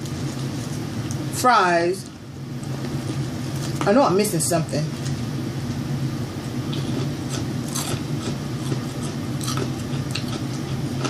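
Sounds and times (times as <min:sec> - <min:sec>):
steady low hum: 0:00.0 - 0:11.0
close chewing of food: 0:06.7 - 0:11.0
food crunches: 0:06.7 - 0:11.0.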